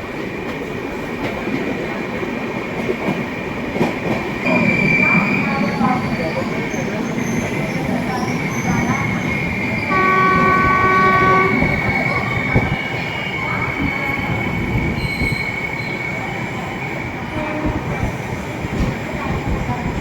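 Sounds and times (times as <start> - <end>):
train rumbling on rails: 0.0 - 20.0
high wheel squeal: 4.5 - 16.4
train horn: 9.9 - 12.7, 17.3 - 17.9.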